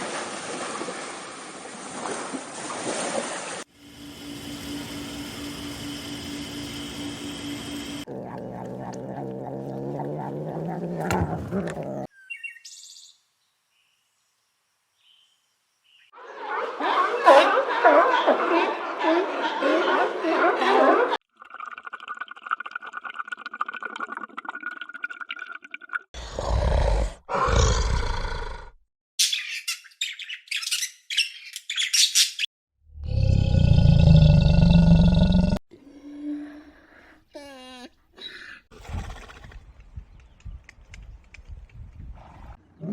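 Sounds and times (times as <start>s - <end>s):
bird chirping: 12.1s - 14.4s, 29.2s - 32.4s.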